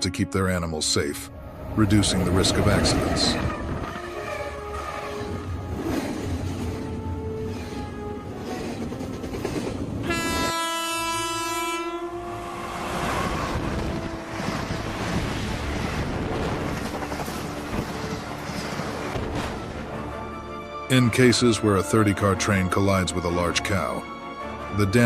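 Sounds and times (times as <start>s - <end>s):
train rumbling on tracks: 1.2s - 20.6s
train horn: 10.0s - 15.0s.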